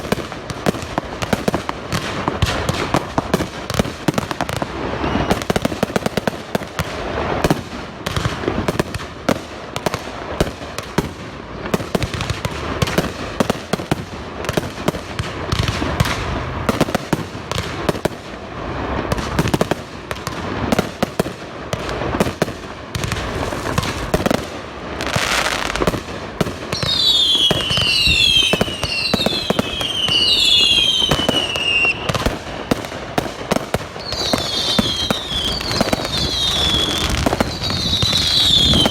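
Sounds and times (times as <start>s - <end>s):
fireworks banging and crackling: 0.0s - 38.9s
shrieking firework whistles: 4.5s - 6.0s, 26.7s - 32.9s, 33.5s - 38.9s.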